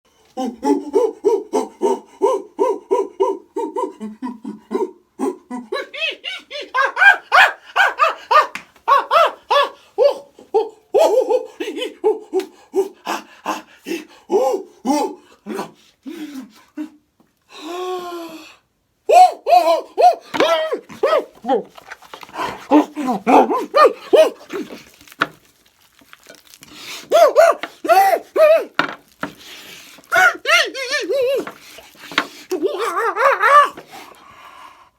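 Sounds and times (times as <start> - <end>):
person imitating monkey hoots: 0.4 - 11.5, 22.4 - 24.8, 27.1 - 28.8, 30.1 - 31.6, 32.5 - 33.8.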